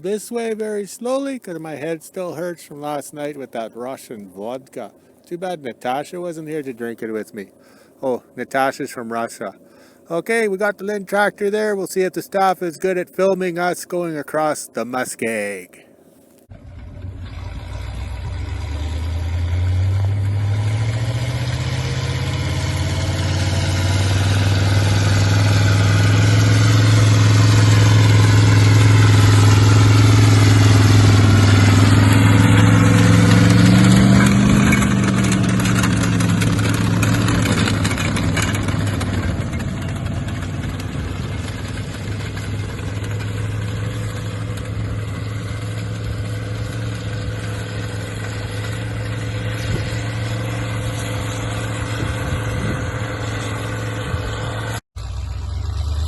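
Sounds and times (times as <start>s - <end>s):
tractor engine passing by: 16.5s - 56.0s.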